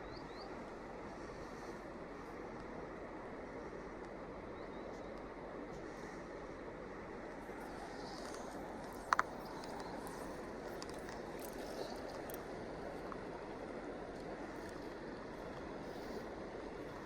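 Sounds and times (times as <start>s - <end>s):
river water flowing: 7.4s - 17.0s.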